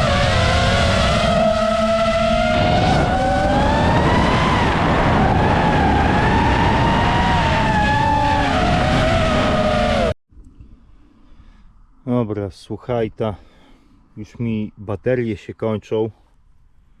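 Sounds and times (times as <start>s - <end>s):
quadcopter propellers whining: 0.0s - 10.2s.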